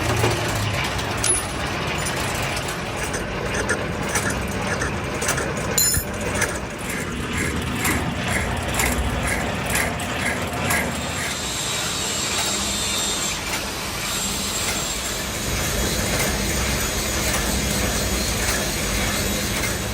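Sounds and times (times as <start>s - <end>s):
machine tool humming: 0.0s - 19.9s.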